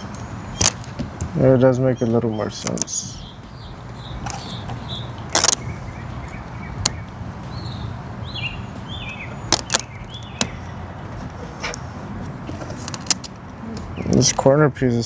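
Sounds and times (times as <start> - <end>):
clicks and taps handling plastic trim: 12.5 - 14.4.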